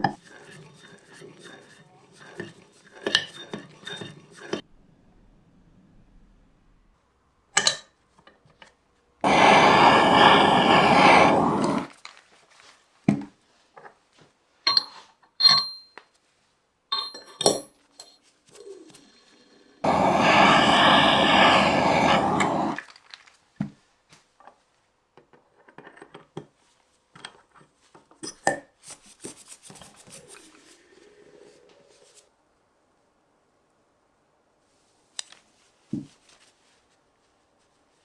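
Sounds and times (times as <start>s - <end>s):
rushing hiss: 9.2s - 11.9s, 19.8s - 22.9s.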